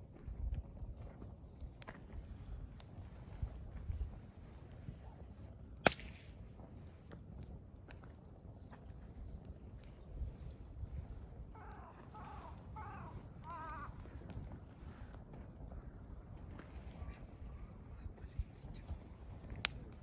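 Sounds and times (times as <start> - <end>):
wood fire crackling: 0.0 - 20.0
loud sharp crack: 5.8 - 6.3
birds calling: 11.5 - 14.0.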